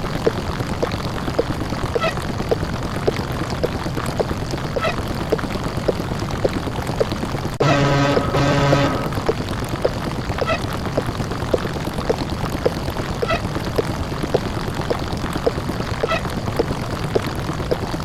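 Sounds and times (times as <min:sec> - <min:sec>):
buzzy pitched tone: 0:07.6 - 0:09.3.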